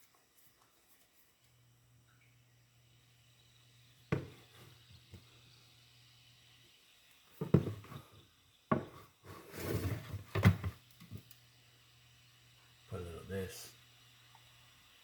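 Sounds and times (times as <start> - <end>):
kitchen items knocking and clattering: 7.4 - 8.0, 8.7 - 11.2.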